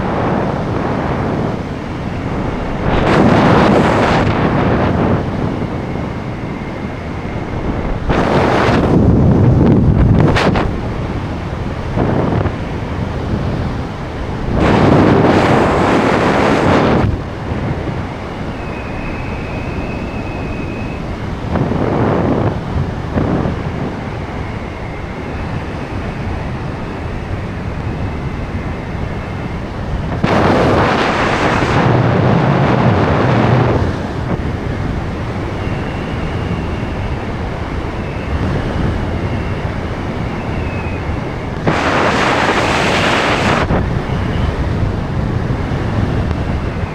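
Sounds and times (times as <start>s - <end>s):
wind rushing over microphone: 0.0s - 46.9s
faint wavering whistle: 17.9s - 21.6s, 24.0s - 29.7s, 35.0s - 44.7s.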